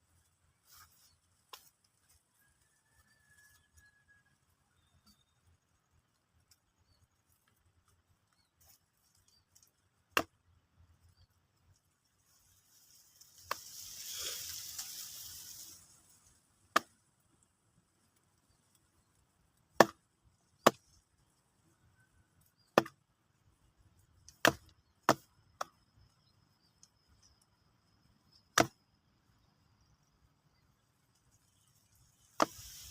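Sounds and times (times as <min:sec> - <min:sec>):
hissing scrape: 0:12.5 - 0:16.3
blade chopping wood: 0:19.7 - 0:20.0, 0:20.6 - 0:21.0, 0:22.6 - 0:23.0, 0:24.3 - 0:25.8, 0:28.5 - 0:28.8, 0:32.4 - 0:32.8.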